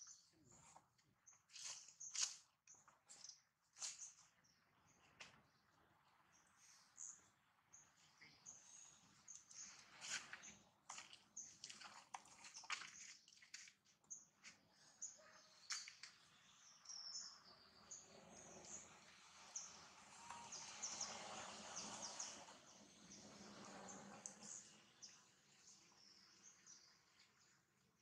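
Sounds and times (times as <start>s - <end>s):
birds chirping and whistling: 14.9s - 25.2s.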